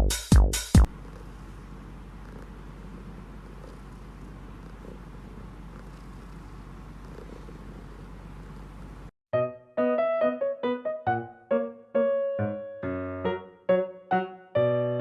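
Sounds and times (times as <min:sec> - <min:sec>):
electronic music beats: 0:00.0 - 0:00.9
cat purring: 0:00.8 - 0:09.1.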